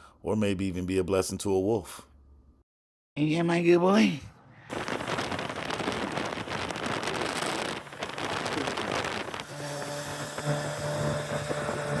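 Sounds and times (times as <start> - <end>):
rain-like hiss: 4.7 - 9.4
vehicle engine humming: 4.7 - 12.0.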